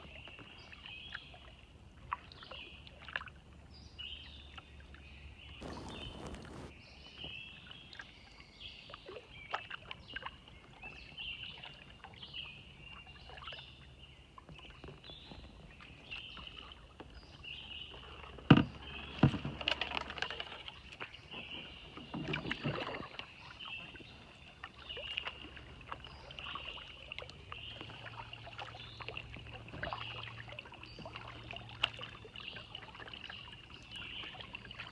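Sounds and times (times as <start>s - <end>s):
kayak paddle splashing in water: 5.6s - 6.7s, 17.5s - 34.9s.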